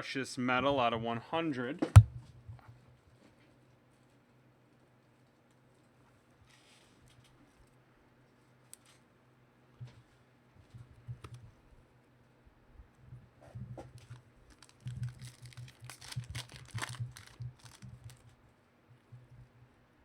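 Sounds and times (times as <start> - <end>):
low steady hum: 0.0 - 20.0
card pack wrappers crinkling: 13.9 - 18.3.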